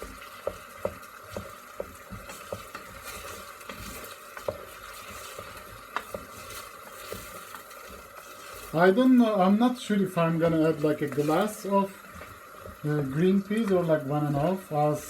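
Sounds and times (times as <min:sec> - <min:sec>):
utensil knocking against pan: 0:00.0 - 0:03.1
faint sizzle: 0:00.0 - 0:15.0.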